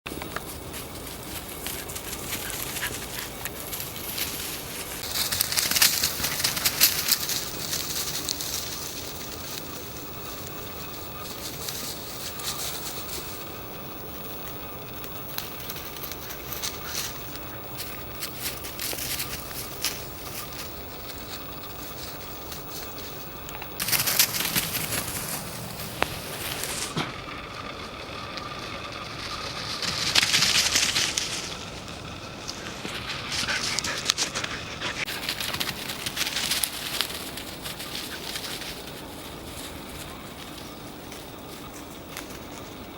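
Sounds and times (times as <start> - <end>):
footsteps crunching on forest floor: 0.2 - 27.1, 29.3 - 42.9
rustling: 0.2 - 42.9
twigs snapping: 1.6 - 13.8, 14.9 - 27.1.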